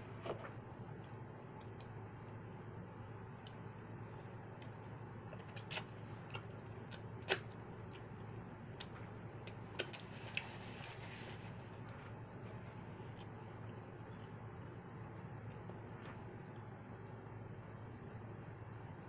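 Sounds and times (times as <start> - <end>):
low steady hum: 0.0 - 19.0
wet chewing clicks and smacks: 4.6 - 10.1.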